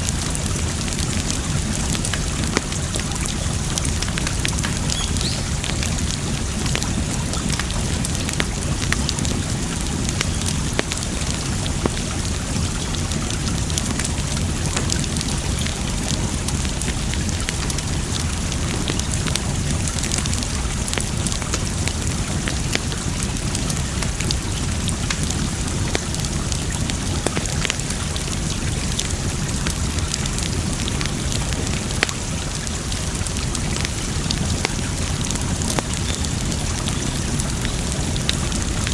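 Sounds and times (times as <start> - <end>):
running water: 0.0 - 38.9
wood fire crackling: 0.0 - 38.9.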